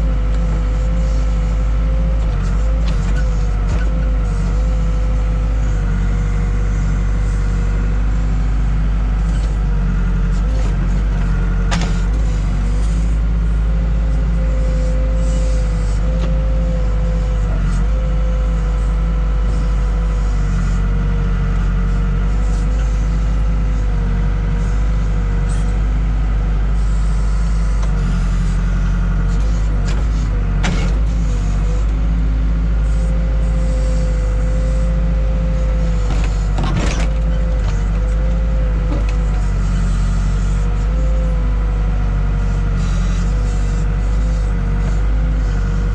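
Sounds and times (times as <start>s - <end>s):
diesel engine running: 0.0s - 45.9s
metallic clanks from digging gear: 29.8s - 31.2s, 36.1s - 37.9s.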